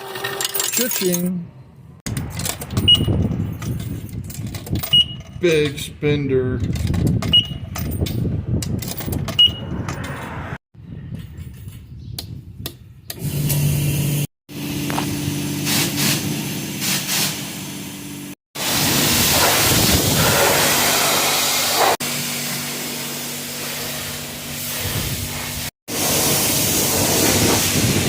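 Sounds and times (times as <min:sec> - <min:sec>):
pressure washer spraying: 0:15.5 - 0:17.8, 0:18.6 - 0:28.0.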